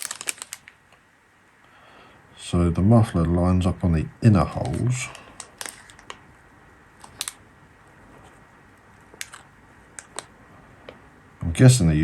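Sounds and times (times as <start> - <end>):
small metal parts clicking: 0.0 - 0.8, 5.4 - 6.2, 7.0 - 7.4, 9.1 - 10.3.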